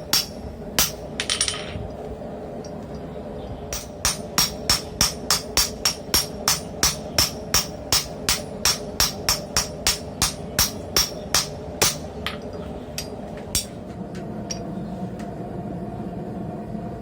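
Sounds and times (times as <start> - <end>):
steady hum: 0.0 - 17.0
hammer ringing on anvil: 3.8 - 12.4.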